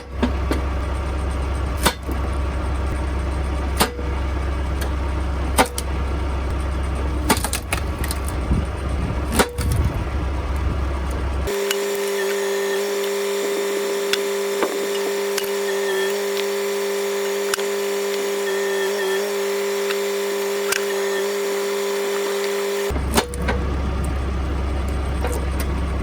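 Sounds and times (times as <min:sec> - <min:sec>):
hydraulic pump whine: 0:00.0 - 0:26.0
tractor engine running: 0:00.0 - 0:26.0
sharp clicks: 0:11.1 - 0:24.2.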